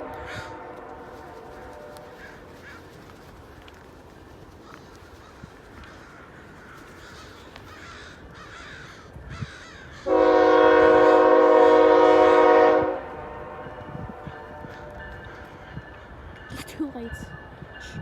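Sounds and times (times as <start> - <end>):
locomotive air horn blast: 0.0 - 2.2, 10.0 - 15.0
crows cawing faintly: 0.0 - 10.3, 14.1 - 16.5.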